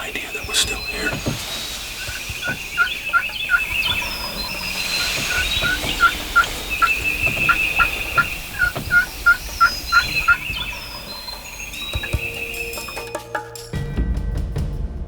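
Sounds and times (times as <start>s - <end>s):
wild turkey yelping: 0.3s - 13.1s.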